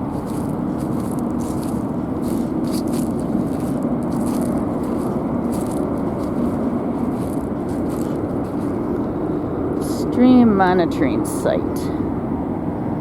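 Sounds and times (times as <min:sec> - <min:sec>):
light footsteps: 0:00.0 - 0:09.2
river water rushing: 0:00.0 - 0:09.4.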